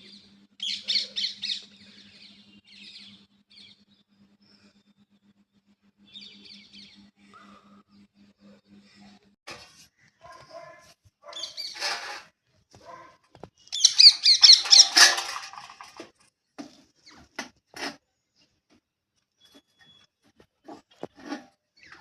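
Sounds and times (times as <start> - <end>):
birds chirping and squawking: 0.6 - 3.7, 11.3 - 12.2, 13.6 - 16.0.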